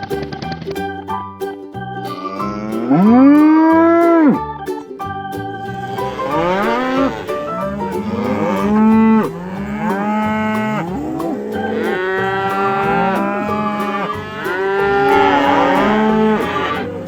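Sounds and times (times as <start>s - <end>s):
cows mooing: 11.6s - 17.0s.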